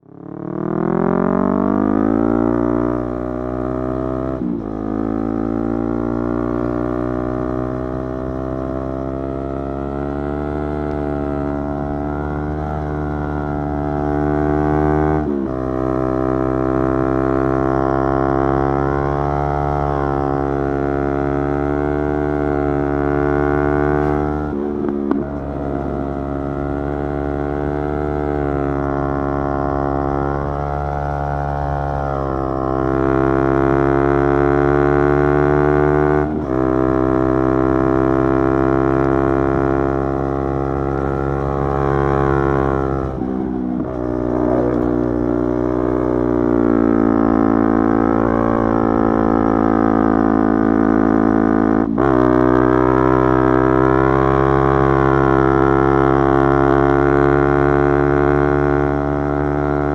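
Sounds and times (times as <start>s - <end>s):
motorcycle engine and exhaust: 0.0s - 59.9s.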